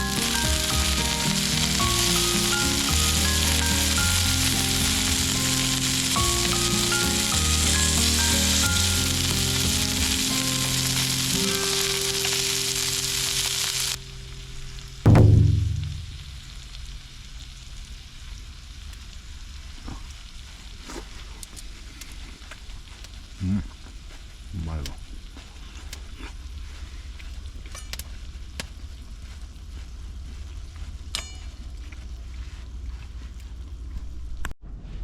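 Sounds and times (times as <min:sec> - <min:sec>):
steak sizzling in a pan: 0:00.0 - 0:14.0
background music: 0:00.0 - 0:14.4
loud thump: 0:15.1 - 0:16.6.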